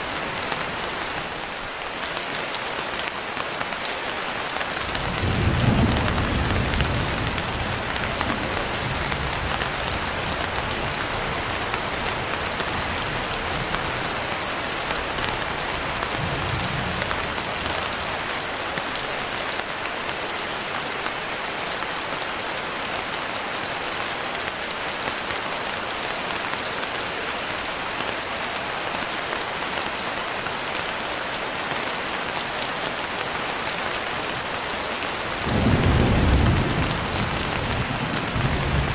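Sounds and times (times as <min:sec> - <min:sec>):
heavy rain falling: 0:00.0 - 0:38.9
distant thunder rumble: 0:04.9 - 0:18.2, 0:35.5 - 0:38.9.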